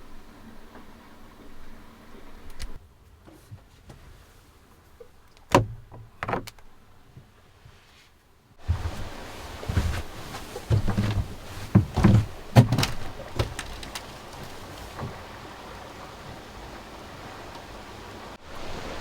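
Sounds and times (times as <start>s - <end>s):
outdoor hiss: 0.0s - 6.1s, 6.7s - 19.0s
gear knocking and thunking: 8.6s - 15.2s.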